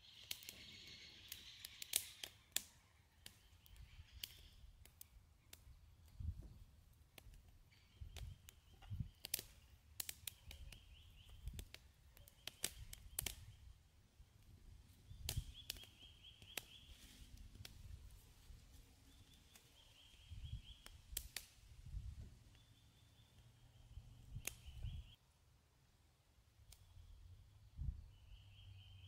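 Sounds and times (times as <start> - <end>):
small bird trilling: 0.0 - 4.6
sharp clicks and crackles: 0.2 - 6.2, 7.0 - 13.6, 15.2 - 17.8, 20.7 - 21.6.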